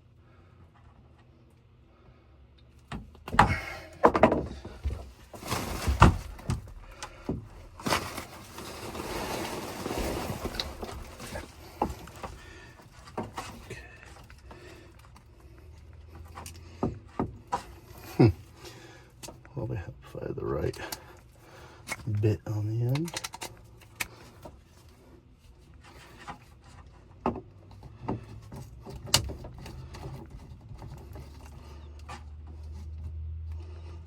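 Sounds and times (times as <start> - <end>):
rasping scraping: 3.9 - 16.8
clicks and knocks on wiring: 22.8 - 24.6, 27.2 - 32.3.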